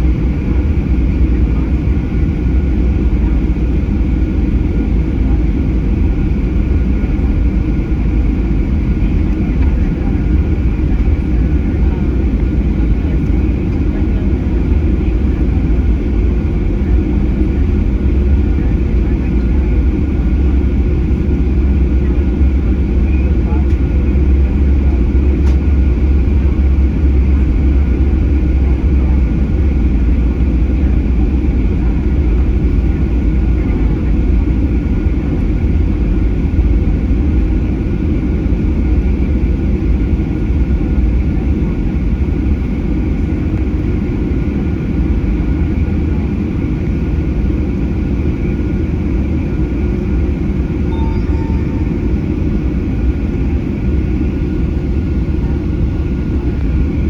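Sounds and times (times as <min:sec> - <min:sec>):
jet engine cabin rumble: 0:00.0 - 0:57.0
faint high whine: 0:50.8 - 0:52.7.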